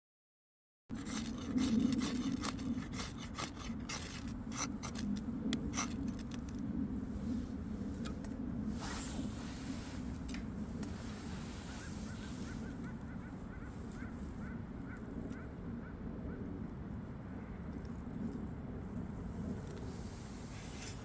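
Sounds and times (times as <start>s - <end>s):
rubbing and scraping: 0.9s - 6.6s, 19.8s - 21.0s
steady low hum: 0.9s - 21.0s.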